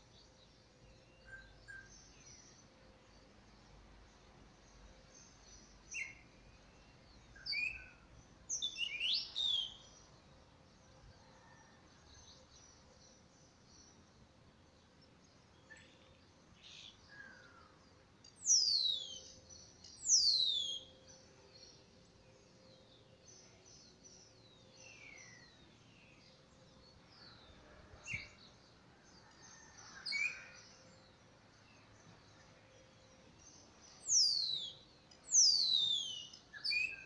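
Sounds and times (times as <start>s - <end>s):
faint bird chirps: 11.0s - 13.0s.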